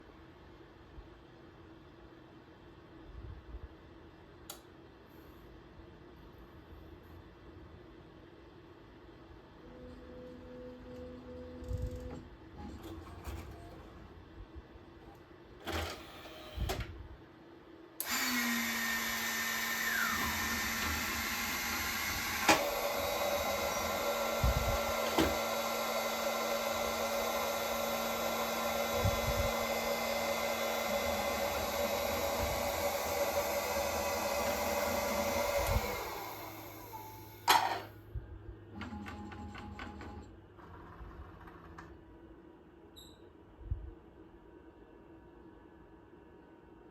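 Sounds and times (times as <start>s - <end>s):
robot vacuum fan motor: 18.0s - 37.6s.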